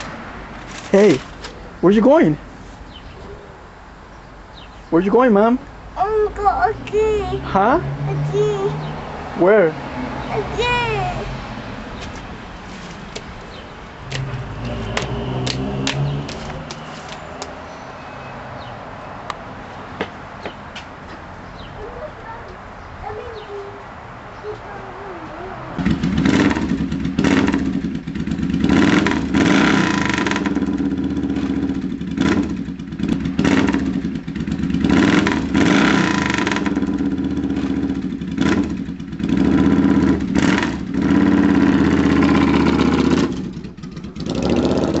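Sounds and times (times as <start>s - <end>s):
motorcycle engine revving: 7.3s - 11.8s, 13.1s - 17.4s, 25.8s - 45.0s.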